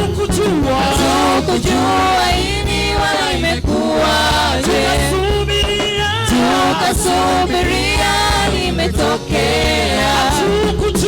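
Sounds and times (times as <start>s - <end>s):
gospel singers: 0.0s - 11.0s
keyboard: 0.0s - 11.0s
steady bass line: 0.0s - 11.0s.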